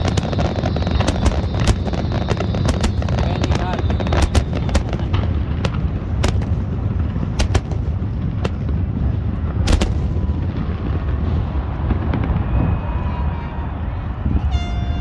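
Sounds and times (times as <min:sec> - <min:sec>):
fireworks cracking: 0:00.0 - 0:11.5
deep rumble of fireworks booms: 0:00.0 - 0:14.5.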